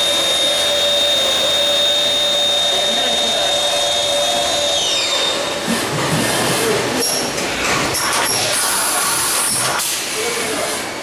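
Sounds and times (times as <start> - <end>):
machine motor whining: 0.0 - 5.8.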